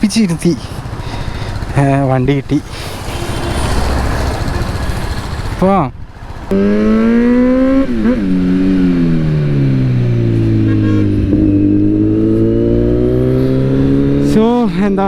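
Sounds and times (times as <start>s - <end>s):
motorcycle engine pulling away: 6.2s - 14.4s.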